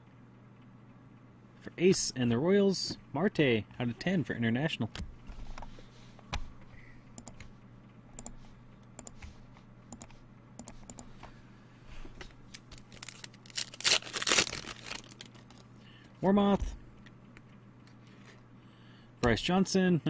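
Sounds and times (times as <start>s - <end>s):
trading cards being flipped: 12.2s - 15.7s.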